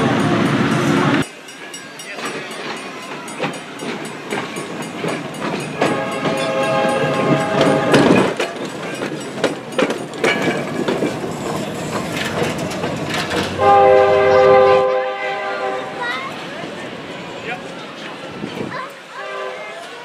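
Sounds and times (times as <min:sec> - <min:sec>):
train wheels rumbling and clicking: 0:00.0 - 0:15.2
train horn blasts: 0:05.8 - 0:08.3, 0:13.6 - 0:16.0, 0:19.2 - 0:19.8.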